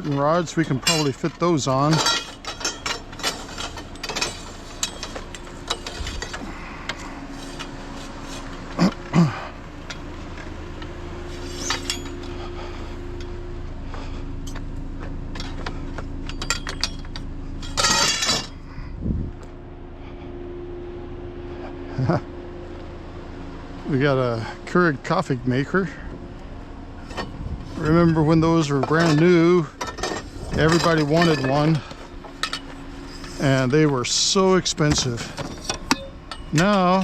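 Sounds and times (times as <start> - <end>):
metal scrap clinking and knocking: 0.0 - 7.7, 11.4 - 12.3, 15.3 - 18.6, 28.1 - 33.7, 34.9 - 37.0
faint steady hum: 0.0 - 37.0.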